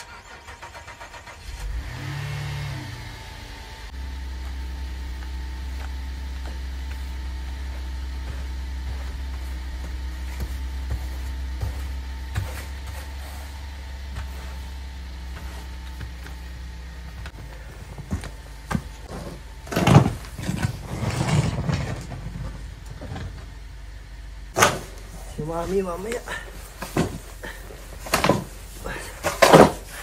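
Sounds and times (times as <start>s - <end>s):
car engine idling: 0.0s - 20.9s, 22.0s - 30.0s
rough scraping noises: 5.2s - 16.5s, 19.0s - 23.4s.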